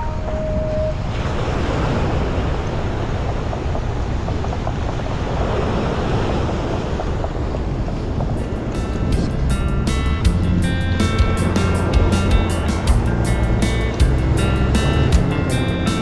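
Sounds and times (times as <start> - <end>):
waves breaking on beach: 1.0 - 9.1
wind buffeting microphone: 6.3 - 16.0.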